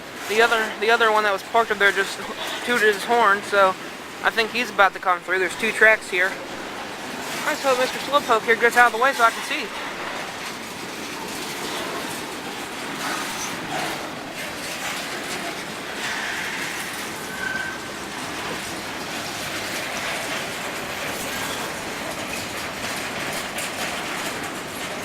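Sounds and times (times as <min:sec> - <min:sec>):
train wheels clattering on rails: 0:00.0 - 0:25.0
high wheel squeal: 0:16.0 - 0:18.0.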